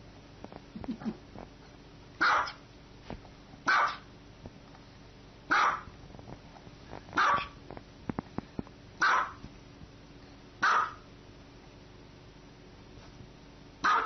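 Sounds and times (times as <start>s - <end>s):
small dog barking: 2.2s - 2.6s, 3.7s - 4.1s, 5.5s - 5.9s, 7.2s - 7.6s, 9.0s - 9.4s, 10.6s - 11.1s, 13.8s - 14.0s.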